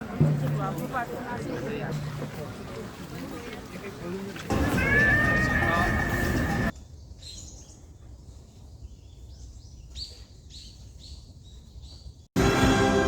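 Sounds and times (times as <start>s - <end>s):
small birds chirping: 5.5s - 12.3s.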